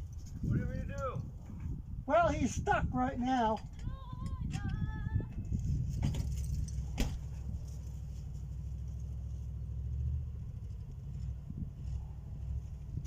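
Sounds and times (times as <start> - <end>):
car engine running: 6.2 - 13.0.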